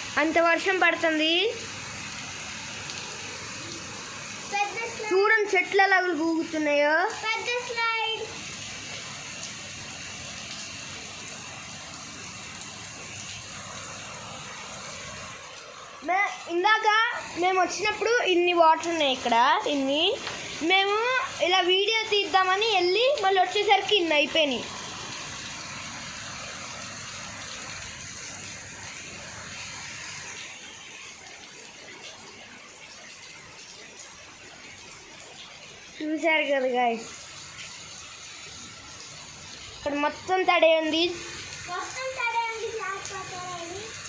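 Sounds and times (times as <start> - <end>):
heavy rain pouring: 0.0 - 44.0.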